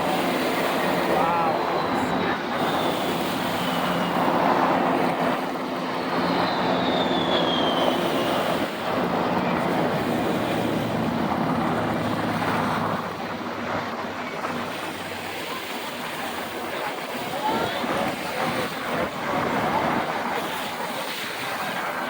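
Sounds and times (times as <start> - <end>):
jet aircraft engine roar: 0.0 - 22.0
falling whistle: 6.1 - 8.4.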